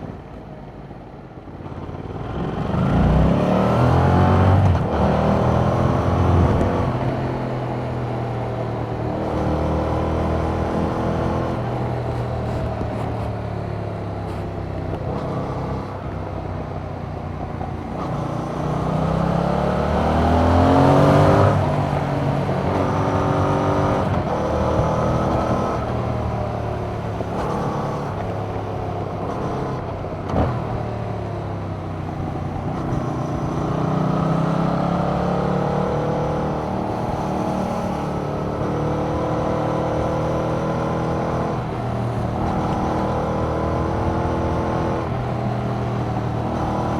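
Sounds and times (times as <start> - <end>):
motorcycle engine revving: 1.7 - 46.9.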